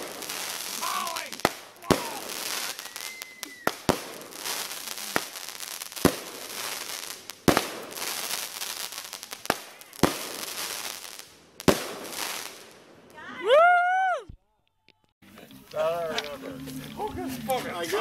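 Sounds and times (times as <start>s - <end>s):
fireworks bangs: 0.0s - 13.7s
fireworks crackling: 0.0s - 14.1s, 15.0s - 18.0s.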